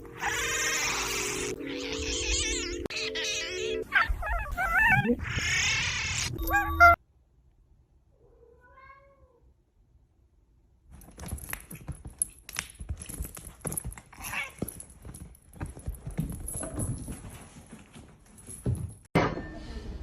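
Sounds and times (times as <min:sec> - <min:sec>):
cat meowing: 0:00.1 - 0:07.0, 0:08.2 - 0:09.4
clattering and knocking: 0:11.0 - 0:19.5.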